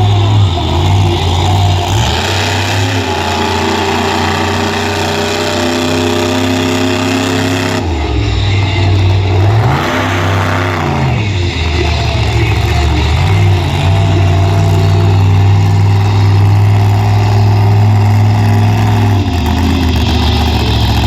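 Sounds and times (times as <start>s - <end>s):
truck engine revving: 0.0s - 21.0s.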